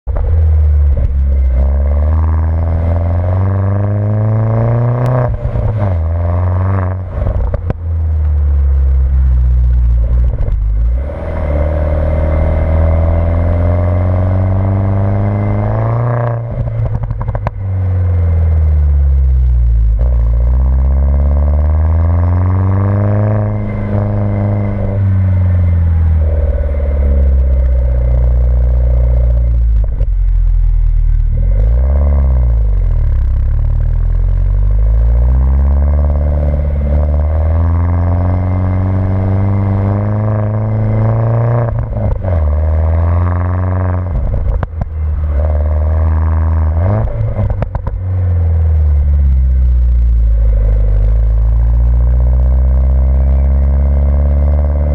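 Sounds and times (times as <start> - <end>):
car engine revving: 0.0 - 54.9
exhaust crackles: 0.0 - 54.9.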